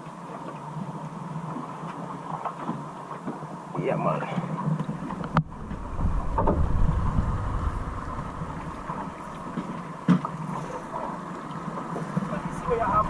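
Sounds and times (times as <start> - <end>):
wind buffeting microphone: 4.9 - 13.0
low rumble: 5.0 - 11.6.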